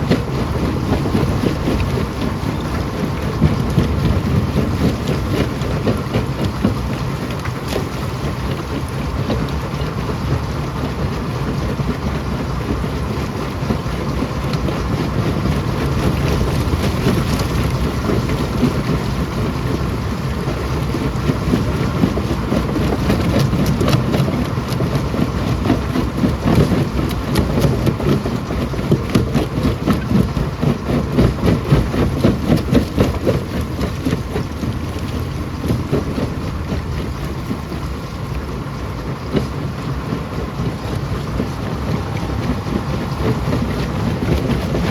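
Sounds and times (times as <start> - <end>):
rock crusher rumbling: 0.0 - 9.4, 13.7 - 44.9.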